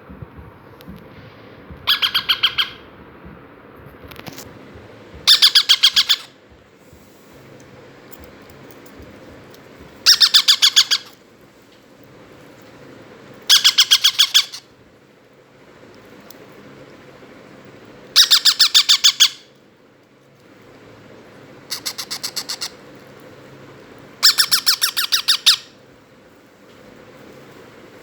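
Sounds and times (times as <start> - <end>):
parakeet chicks squawking: 1.7 - 2.9, 5.2 - 6.4, 10.0 - 11.2, 13.5 - 14.6, 18.2 - 19.5, 21.7 - 22.8, 24.2 - 25.8.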